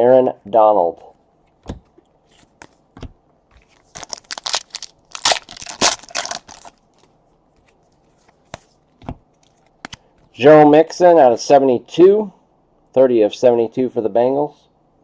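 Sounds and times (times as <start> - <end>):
foil wrapper tearing and crinkling: 3.8 - 6.8.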